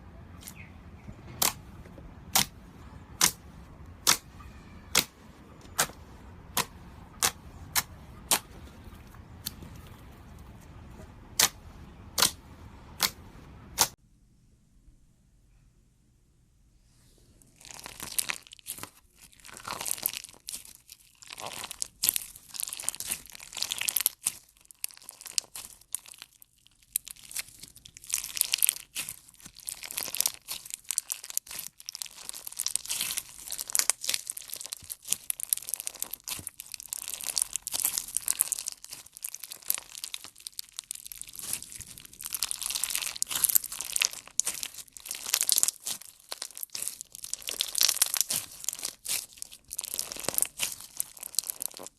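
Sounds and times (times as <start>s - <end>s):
slime crackling and popping: 3.2s - 3.4s, 17.5s - 51.9s.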